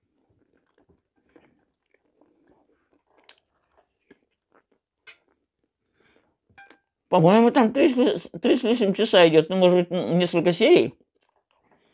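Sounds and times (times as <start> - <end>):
person chewing food: 0.0 - 7.0, 11.0 - 11.9.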